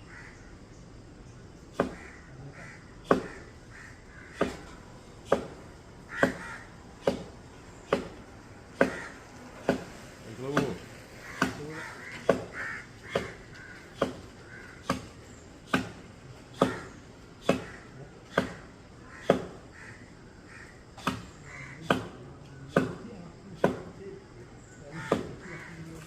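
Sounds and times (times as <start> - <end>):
crows cawing: 0.0 - 0.6, 1.7 - 22.9, 24.6 - 26.0
axe chopping wood: 1.7 - 2.1, 3.0 - 3.4, 4.4 - 5.6, 6.2 - 6.4, 7.0 - 7.3, 7.9 - 8.2, 8.8 - 9.1, 9.7 - 9.9, 10.5 - 15.1, 15.7 - 18.6, 19.2 - 19.6, 21.0 - 23.0, 23.6 - 23.9, 25.0 - 25.5.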